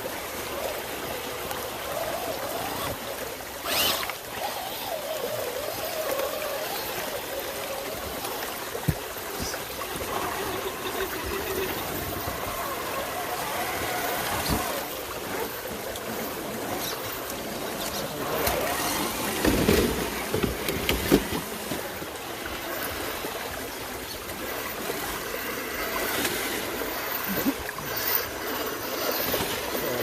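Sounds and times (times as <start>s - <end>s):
running water: 0.0s - 30.0s
knocks and splashy rustles: 1.9s - 30.0s.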